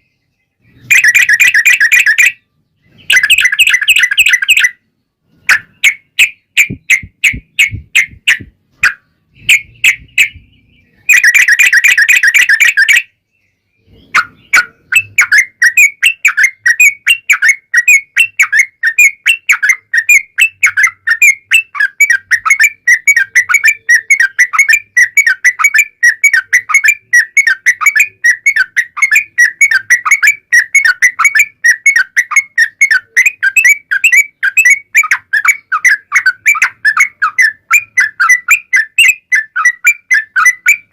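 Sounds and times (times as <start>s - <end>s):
bird song with rapid chattering: 0.0s - 40.9s.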